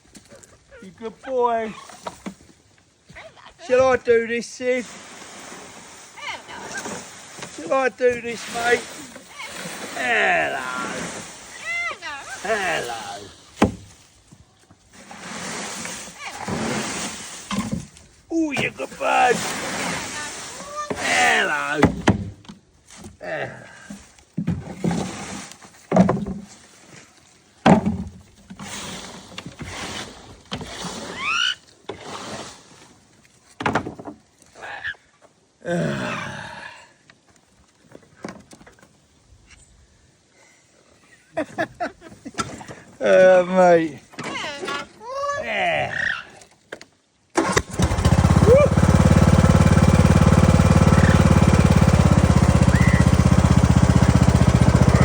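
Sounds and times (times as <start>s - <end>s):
small engine idling: 47.4s - 55.0s
parrot rising whistled call: 52.7s - 53.1s.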